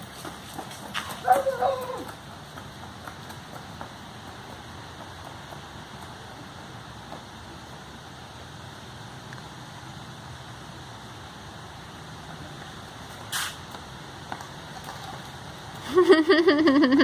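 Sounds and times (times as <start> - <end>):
steady low hiss: 1.9 - 17.0
short scuffing noise: 13.1 - 13.7.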